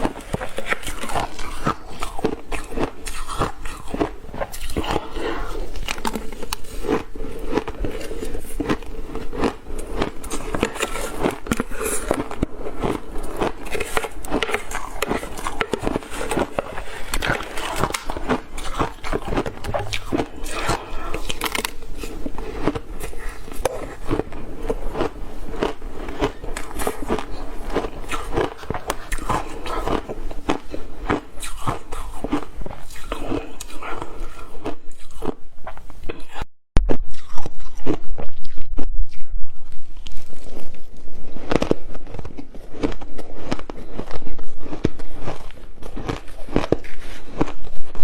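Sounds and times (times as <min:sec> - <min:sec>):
person crunching ice: 0:00.0 - 0:34.1.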